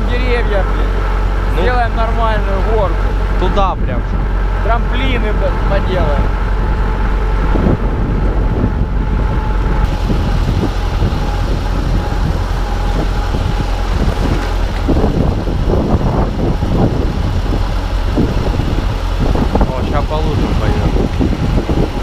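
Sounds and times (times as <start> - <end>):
tractor engine running: 0.0 - 22.0
knocks and rattles: 9.7 - 22.0.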